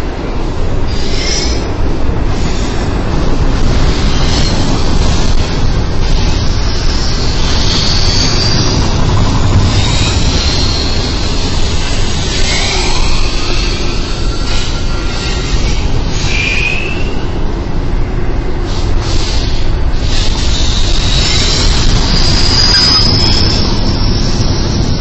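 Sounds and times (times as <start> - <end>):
freight train wheels rumbling: 0.0 - 25.0
high-pitched wheel squeals: 3.9 - 4.9, 6.2 - 17.3, 19.1 - 25.0.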